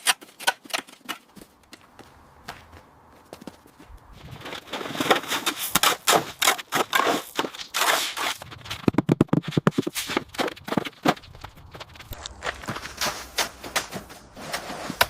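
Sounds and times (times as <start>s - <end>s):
hand tool scraping: 4.4s - 15.0s.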